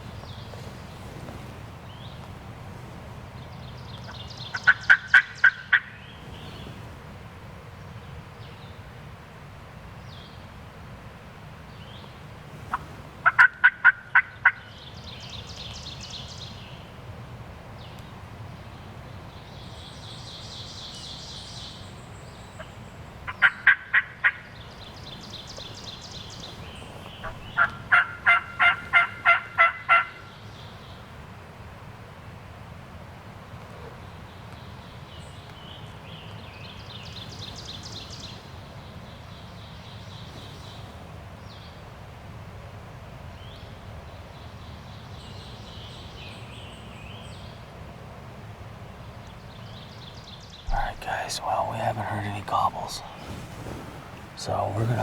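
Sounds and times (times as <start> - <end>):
high bird calls: 22.5 - 30.4
turkey yelping: 27.2 - 30.2.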